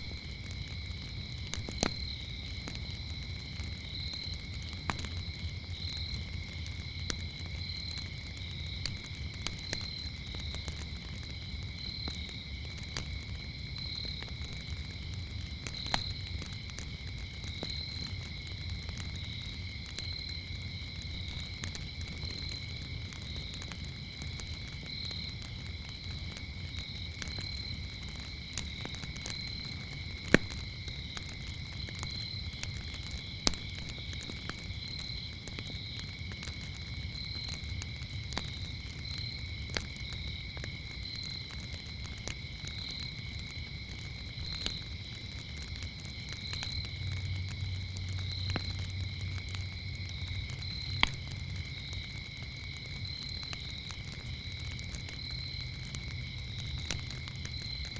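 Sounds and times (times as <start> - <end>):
crickets chirring: 0.0 - 57.9
wood fire crackling and popping: 0.0 - 57.9.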